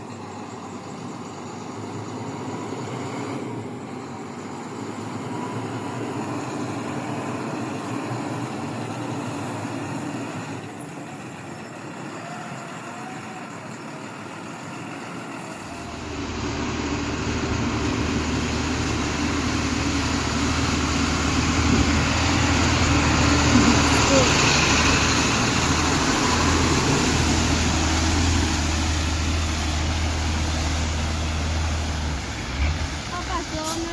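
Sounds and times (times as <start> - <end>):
road noise: 0.0 - 33.9
truck engine running: 0.0 - 33.9
deep rumble: 15.8 - 28.5.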